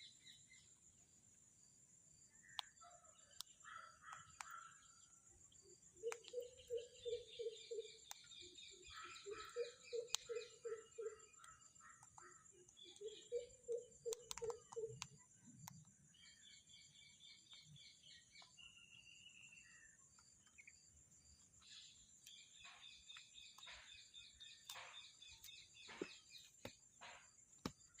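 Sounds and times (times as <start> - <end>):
parrot chirping: 6.0 - 12.2
sharp clicks: 14.1 - 15.9.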